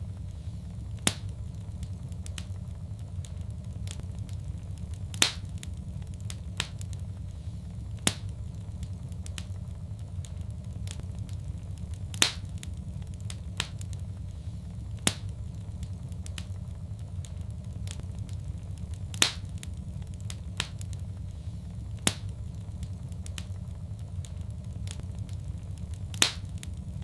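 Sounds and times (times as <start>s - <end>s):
fire crackling: 0.0s - 27.0s
sharp pops of fire: 0.0s - 27.0s.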